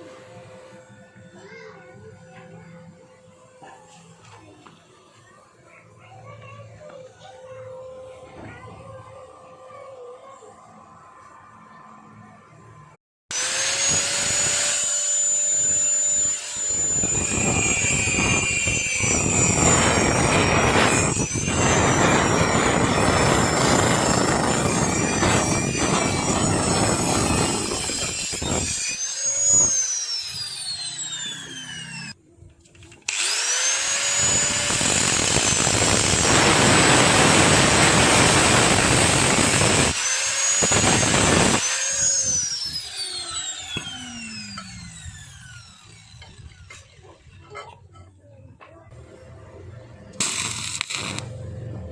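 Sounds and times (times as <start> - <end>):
power tool whining and cutting: 13.3 - 32.2, 33.0 - 47.0, 50.2 - 51.4.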